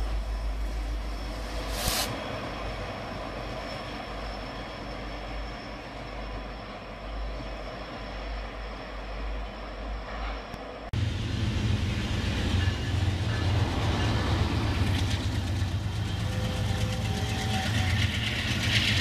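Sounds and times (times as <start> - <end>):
train rumbling past: 0.0 - 19.0
short hiss: 1.6 - 2.2.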